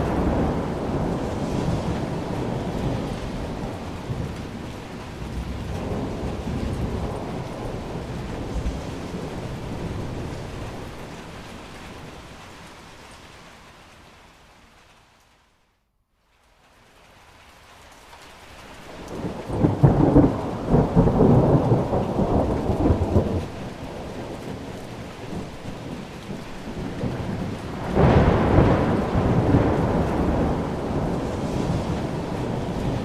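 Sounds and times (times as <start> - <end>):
thunder rolling: 0.0 - 12.2, 19.0 - 33.0
steady rain: 0.0 - 33.0.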